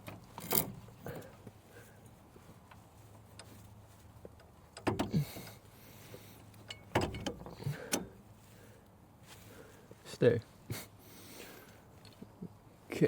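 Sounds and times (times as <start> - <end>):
metal brake parts clanking: 6.6 - 8.2.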